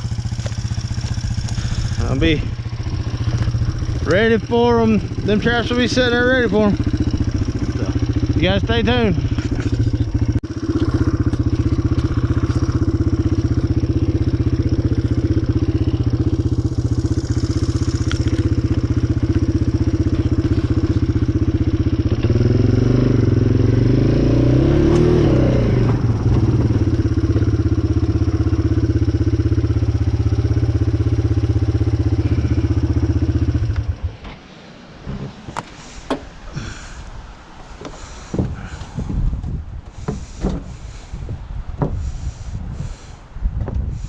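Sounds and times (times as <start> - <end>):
vehicle engine running: 0.0 - 34.2, 37.8 - 43.1.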